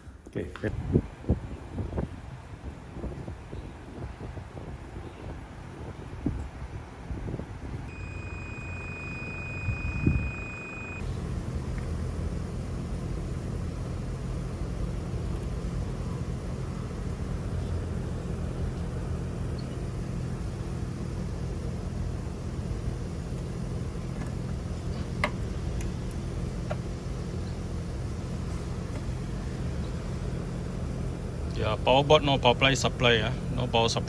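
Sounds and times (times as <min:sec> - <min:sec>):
low machinery hum: 0:00.0 - 0:34.0
faint high whine: 0:07.9 - 0:34.0.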